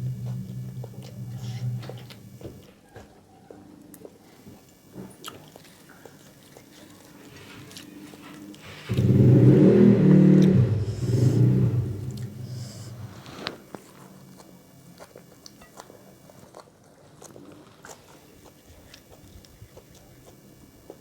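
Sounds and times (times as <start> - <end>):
loud low hum: 0.0 - 2.6, 8.6 - 13.6
chewing and biting: 0.0 - 3.2, 3.9 - 21.0.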